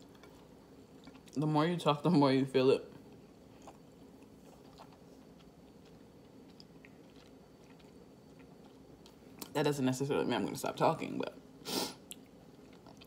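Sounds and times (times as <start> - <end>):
room hum: 0.0 - 13.0
faint chewing mouth clicks: 3.6 - 9.5.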